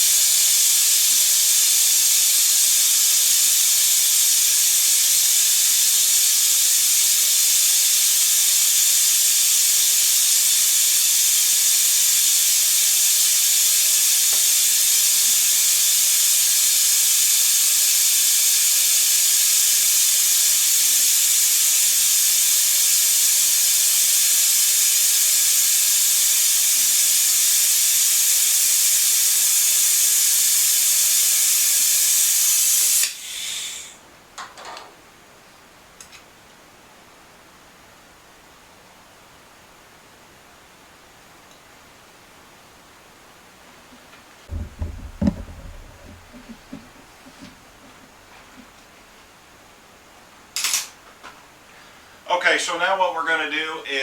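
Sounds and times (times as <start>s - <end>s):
pneumatic brake bleeder hissing: 0.0s - 34.0s, 44.5s - 47.0s.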